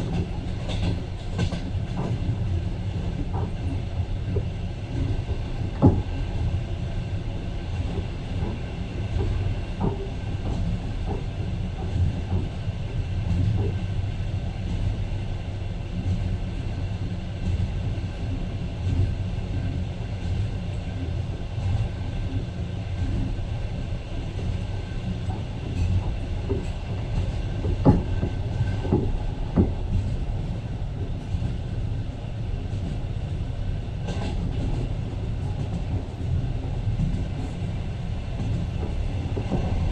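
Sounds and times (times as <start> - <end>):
train wheels knocking: 0.0 - 2.4, 25.1 - 31.6
train low rumble: 0.0 - 39.9.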